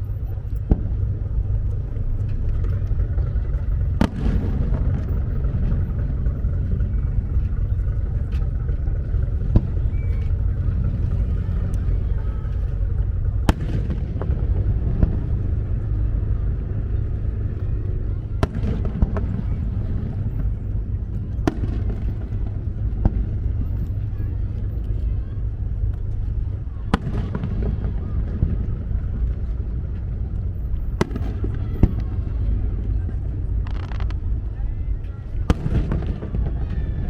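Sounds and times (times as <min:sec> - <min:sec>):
low rumble: 0:00.0 - 0:37.0
distant fireworks bangs: 0:03.1 - 0:07.7, 0:18.4 - 0:20.6, 0:21.3 - 0:23.8, 0:31.0 - 0:32.3, 0:35.5 - 0:36.7.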